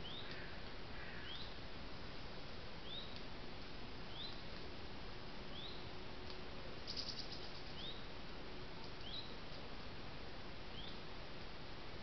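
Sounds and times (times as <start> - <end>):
small bird chirping: 0.0 - 0.4, 2.8 - 3.2, 4.1 - 4.4, 5.5 - 5.8, 6.8 - 8.1, 9.0 - 9.4, 10.7 - 11.0.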